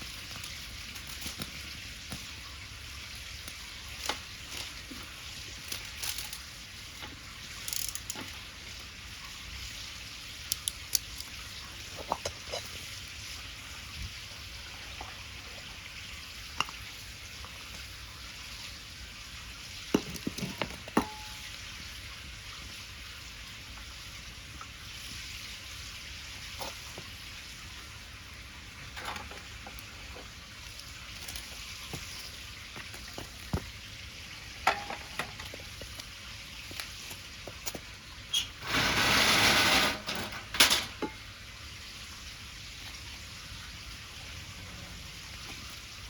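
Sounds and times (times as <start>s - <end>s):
wood fire crackling: 0.0s - 11.9s, 28.6s - 40.5s.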